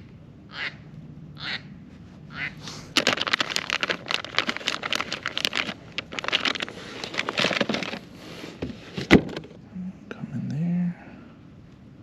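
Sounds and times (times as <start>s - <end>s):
plastic crinkling and rustling: 2.9s - 9.5s.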